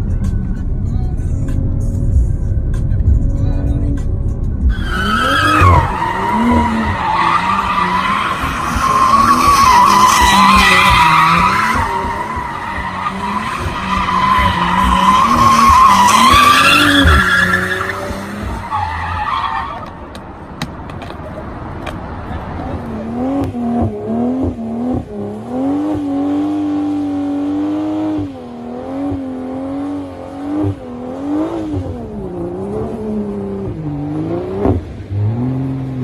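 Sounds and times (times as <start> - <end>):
car engine revving: 1.1 - 19.9, 21.5 - 36.0
tyres screeching: 4.7 - 20.3.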